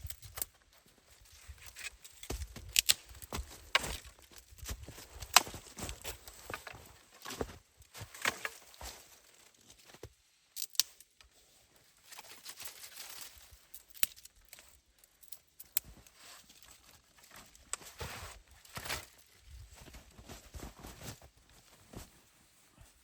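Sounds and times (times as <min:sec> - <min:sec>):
crunching and rustling in snow: 0:00.1 - 0:10.1, 0:15.8 - 0:23.0.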